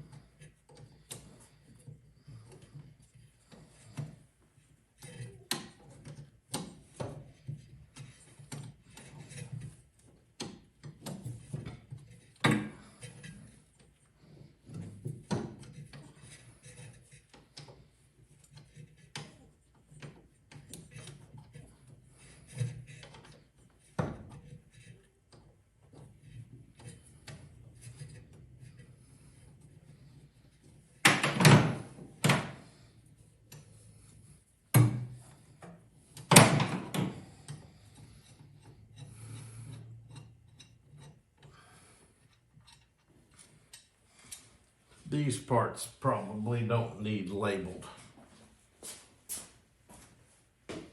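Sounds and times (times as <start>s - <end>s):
hand tools and parts clicking: 34.7s - 44.5s.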